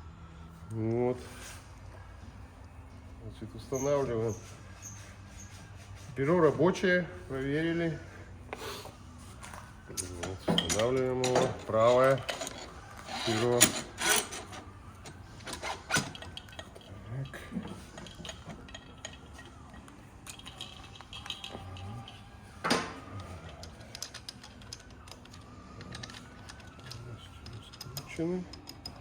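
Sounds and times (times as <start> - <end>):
metal clinks and knocks: 9.9 - 29.0.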